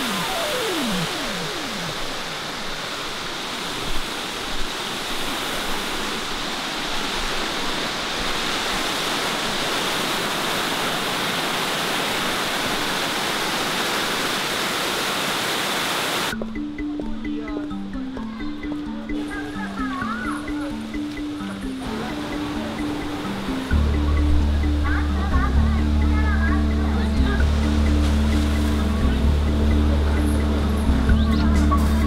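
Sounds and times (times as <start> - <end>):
music notes: 0.0 - 2.3, 16.3 - 32.0
running water: 0.0 - 32.0.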